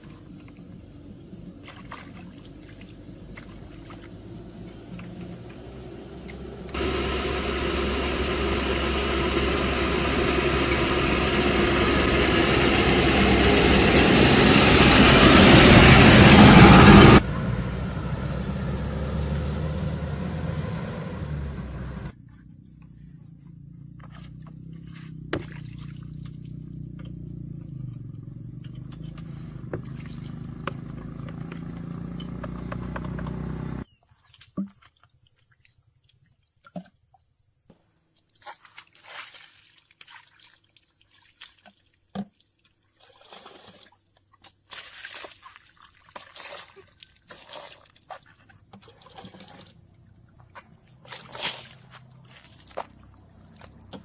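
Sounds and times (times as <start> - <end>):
engine running: 2.7 - 22.1, 26.2 - 33.8
low hum: 3.4 - 22.1.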